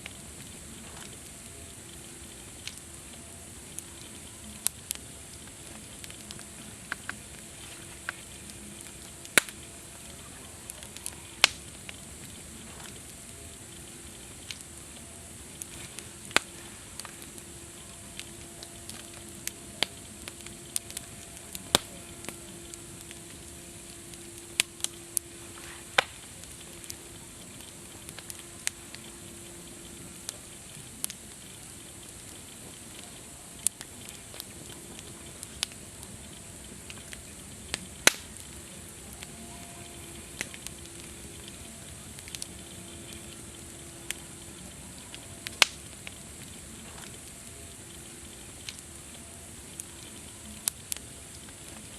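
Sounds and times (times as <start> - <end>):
burning wood popping: 0.0 - 51.9
campfire crackling: 0.0 - 51.9.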